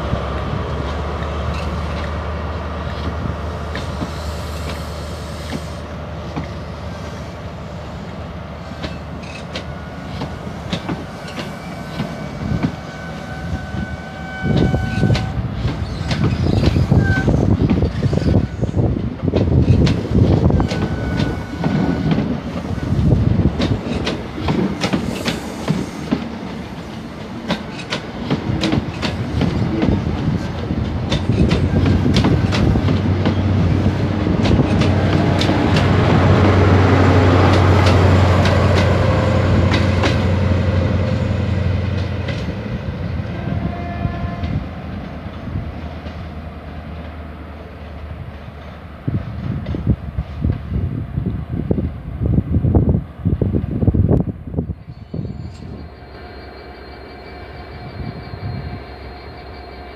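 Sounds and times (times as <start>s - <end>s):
train engine drone: 0.0s - 59.9s
train wheels clicking over rail joints: 0.4s - 43.0s.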